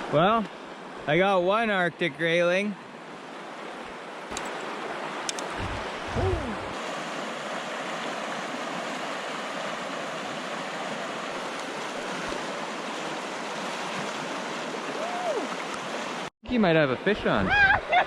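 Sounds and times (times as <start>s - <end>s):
river water rushing: 2.8s - 16.3s
low thump: 5.5s - 6.8s.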